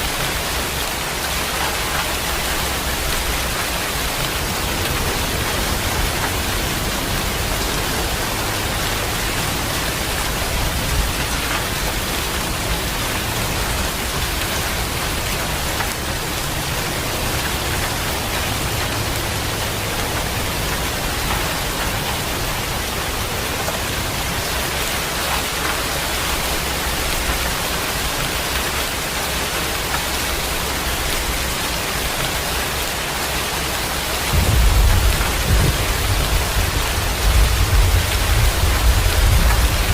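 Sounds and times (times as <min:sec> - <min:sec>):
heavy rain hissing: 0:00.0 - 0:39.9
deep rumble of thunder: 0:34.3 - 0:39.9.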